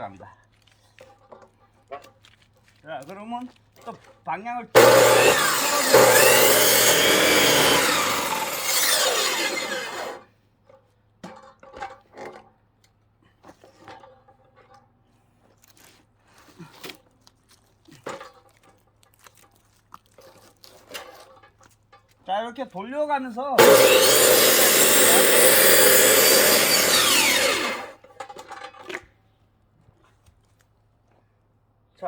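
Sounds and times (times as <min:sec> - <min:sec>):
power saw cutting log: 0:04.8 - 0:10.2, 0:23.6 - 0:28.0.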